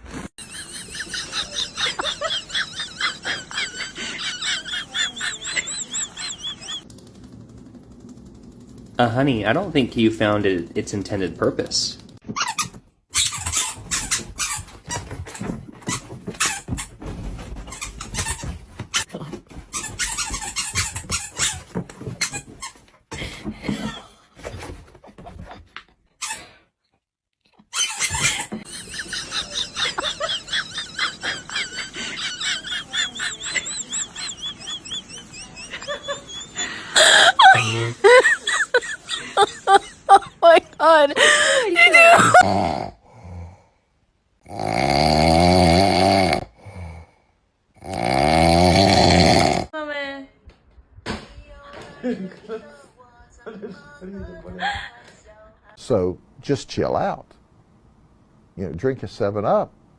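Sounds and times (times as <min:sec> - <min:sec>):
pet snoring: 0:42.4 - 0:43.6, 0:44.4 - 0:47.2, 0:47.8 - 0:49.7.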